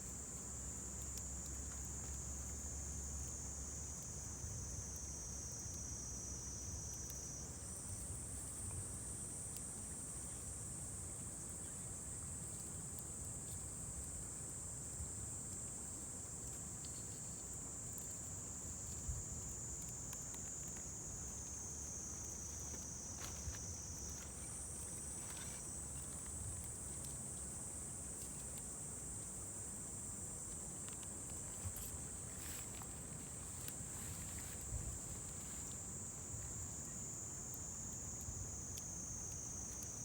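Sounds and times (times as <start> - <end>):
insects trilling: 15.3 - 40.0.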